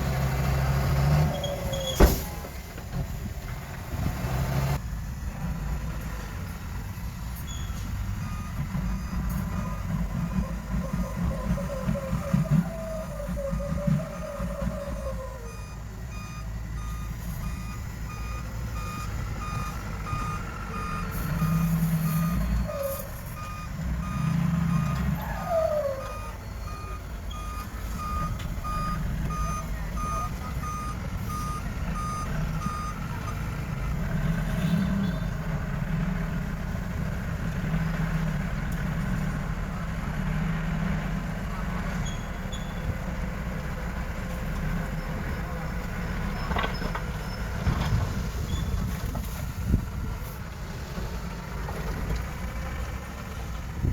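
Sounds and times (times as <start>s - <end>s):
diesel engine running: 0.0s - 53.9s
reversing alarm beeping: 7.4s - 35.4s.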